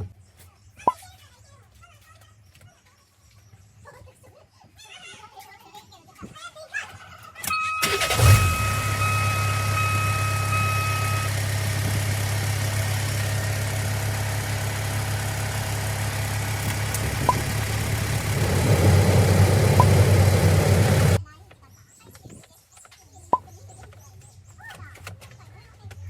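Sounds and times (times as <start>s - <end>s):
diesel truck engine idling: 7.8s - 21.2s.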